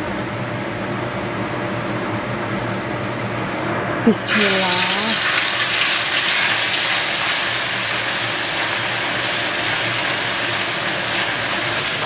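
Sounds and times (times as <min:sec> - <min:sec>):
paste sizzling in hot oil: 0:04.3 - 0:12.0.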